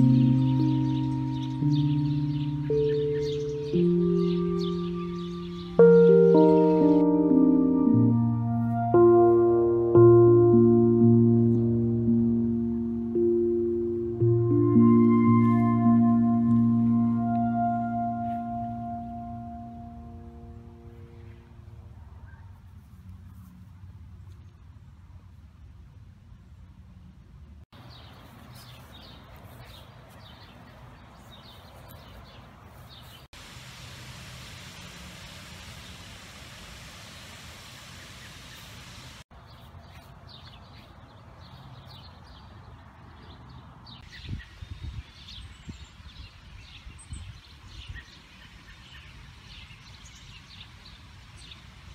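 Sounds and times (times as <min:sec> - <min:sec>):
small birds chirping: 0:00.0 - 0:07.3, 0:27.8 - 0:33.3, 0:37.7 - 0:51.7
steady hiss: 0:33.3 - 0:39.3.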